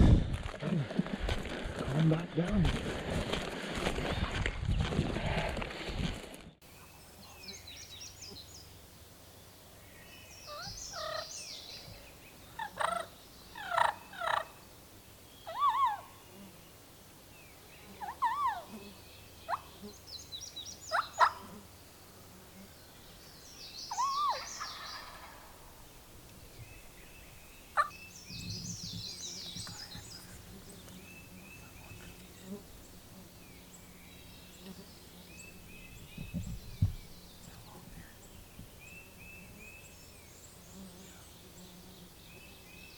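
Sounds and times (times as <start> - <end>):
songbirds chirping: 6.6 - 42.9
turkeys gobbling: 12.6 - 14.6, 20.9 - 21.5, 23.9 - 25.8.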